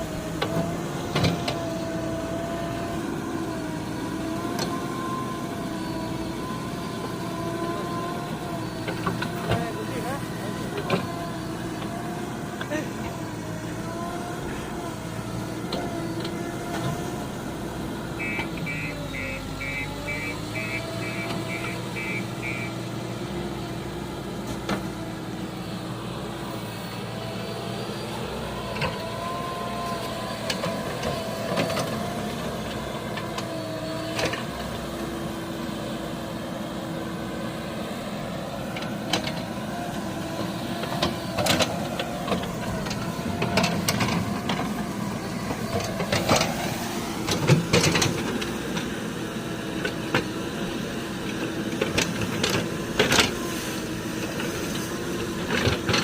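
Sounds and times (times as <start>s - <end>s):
diesel engine running: 0.0s - 56.0s
short high beeps: 18.2s - 22.8s.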